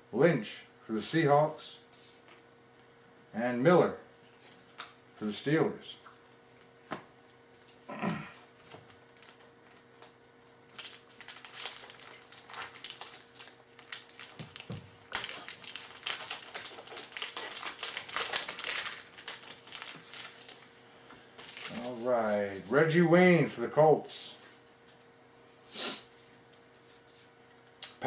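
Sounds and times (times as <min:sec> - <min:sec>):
wrapper crinkling and tearing: 0:10.7 - 0:20.7, 0:21.4 - 0:22.2.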